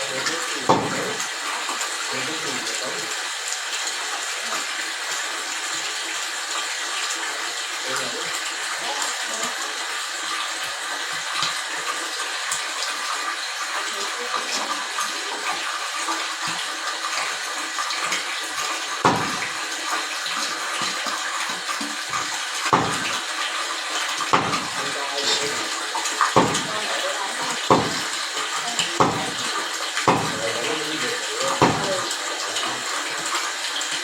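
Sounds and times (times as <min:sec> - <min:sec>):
running water: 0:00.0 - 0:34.0
sharp knocks: 0:00.7 - 0:01.1, 0:19.0 - 0:19.5, 0:22.7 - 0:23.1, 0:24.3 - 0:24.7, 0:26.3 - 0:26.7, 0:27.7 - 0:28.1, 0:29.0 - 0:29.4, 0:30.0 - 0:30.4, 0:31.6 - 0:31.9.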